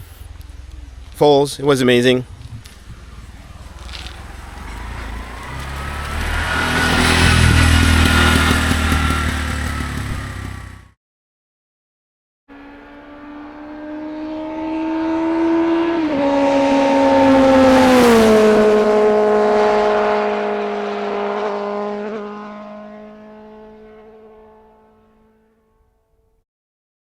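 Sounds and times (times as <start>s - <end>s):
motor vehicle passing by: 2.2s - 10.9s, 12.5s - 25.4s.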